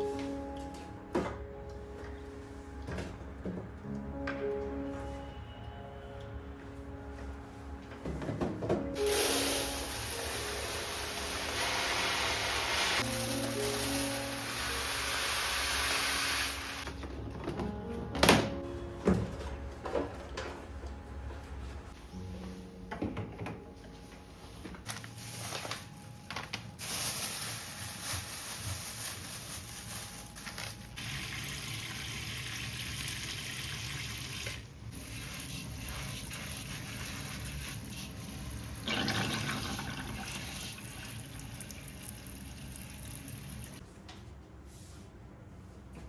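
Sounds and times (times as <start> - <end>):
water running from a tap: 31.0 - 43.8.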